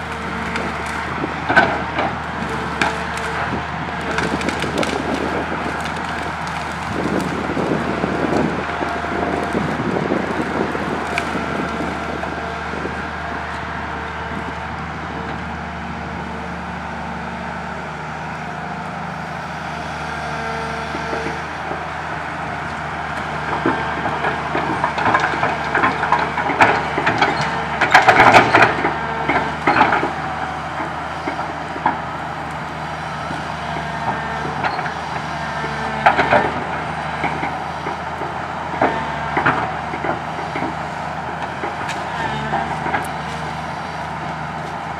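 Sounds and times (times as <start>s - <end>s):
tree branches cracking and knocking: 0.0s - 13.6s, 22.7s - 30.2s
excavator diesel engine running: 0.0s - 44.9s.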